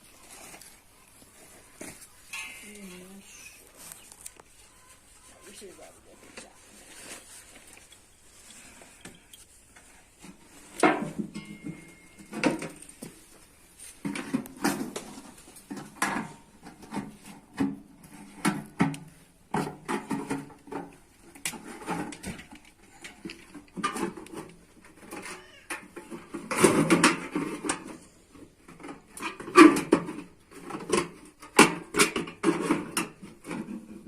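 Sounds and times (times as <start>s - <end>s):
metal knocks and clanks: 10.8s - 12.9s.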